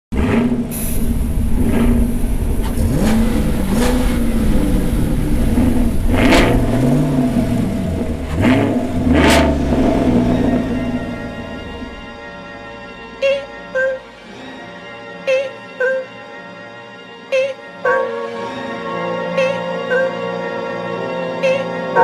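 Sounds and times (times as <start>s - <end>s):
car engine accelerating: 0.1s - 12.5s.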